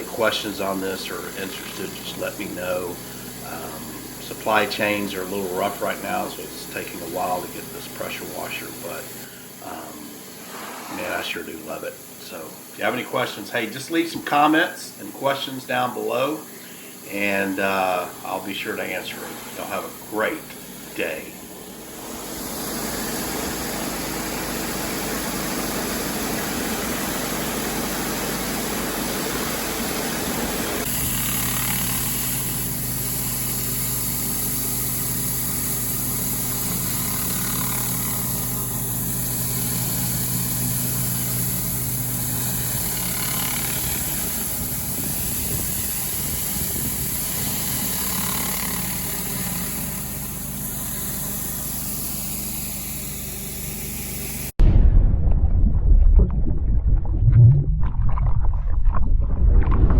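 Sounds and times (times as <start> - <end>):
constant hiss: 0.0 - 21.4
pressure washer engine running: 0.0 - 54.6.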